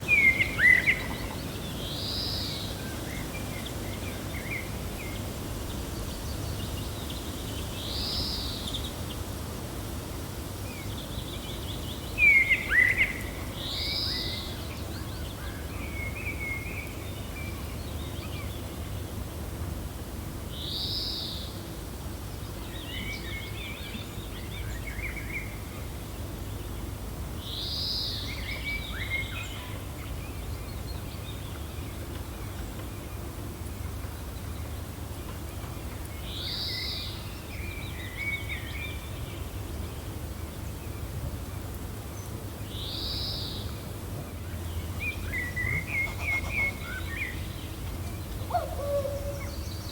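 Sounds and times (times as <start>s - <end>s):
birds chirping: 44.3s - 49.9s
bird sweeping call: 45.6s - 47.4s.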